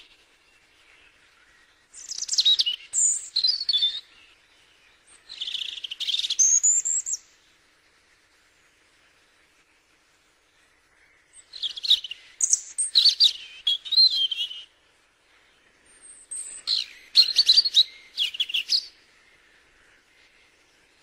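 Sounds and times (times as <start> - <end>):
bird chirping and warbling: 1.9 - 7.2, 11.4 - 14.7, 15.9 - 19.0.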